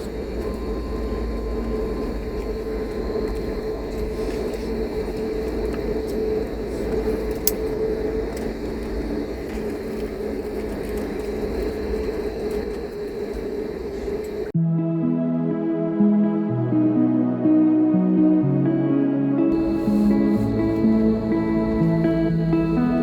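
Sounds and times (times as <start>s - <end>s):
jet engine hum: 0.0s - 14.6s, 19.5s - 23.0s
low cabin rumble: 0.0s - 14.6s, 19.5s - 23.0s
click: 7.3s - 7.7s.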